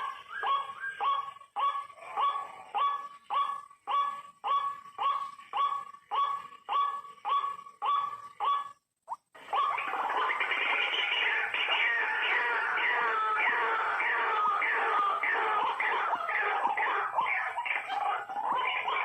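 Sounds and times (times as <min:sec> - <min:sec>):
waterhen harsh calls: 0:09.4 - 0:19.0.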